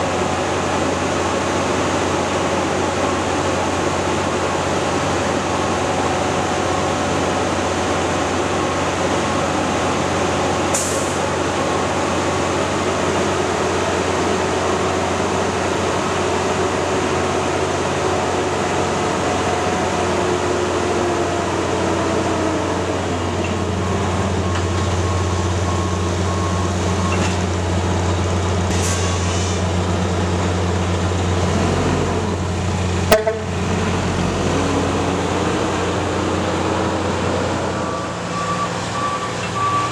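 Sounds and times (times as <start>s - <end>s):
truck diesel engine running: 0.0s - 39.9s
short air hisses: 28.7s - 29.7s.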